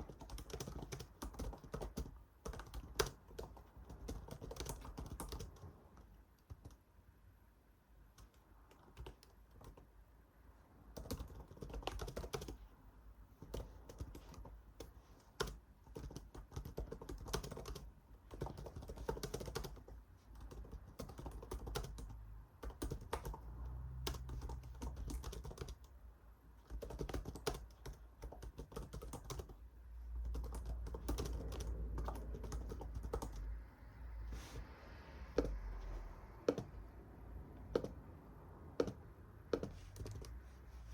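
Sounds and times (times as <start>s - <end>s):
typing on computer keyboard: 0.0s - 6.8s, 8.1s - 9.9s, 10.9s - 12.6s, 13.4s - 23.4s, 24.0s - 25.9s, 26.6s - 29.6s, 30.2s - 33.5s, 35.4s - 35.6s, 36.4s - 36.8s, 37.6s - 38.0s, 38.8s - 40.4s.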